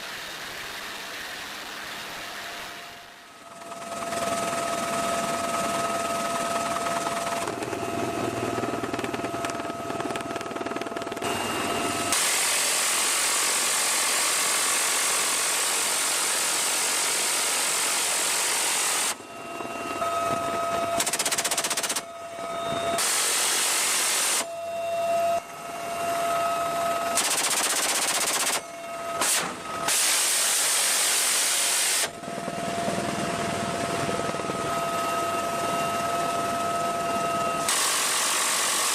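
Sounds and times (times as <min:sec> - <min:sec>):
helicopter whine: 0:00.1 - 0:38.9
rapid-fire guns firing bursts: 0:21.0 - 0:22.0, 0:27.2 - 0:28.6.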